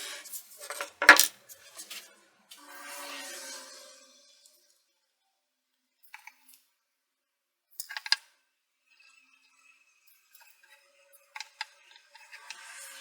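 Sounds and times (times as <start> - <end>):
hard objects clicking and clinking: 0.6 - 1.4.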